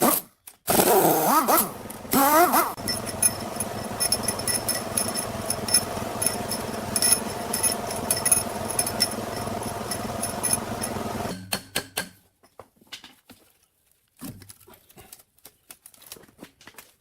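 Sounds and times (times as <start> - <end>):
workshop tool motor humming: 0.7 - 11.9
metallic clicks and rattles: 2.8 - 11.4.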